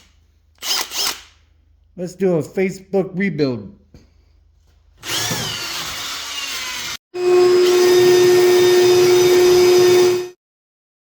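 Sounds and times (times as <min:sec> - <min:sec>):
power tool whining: 0:05.0 - 0:10.4.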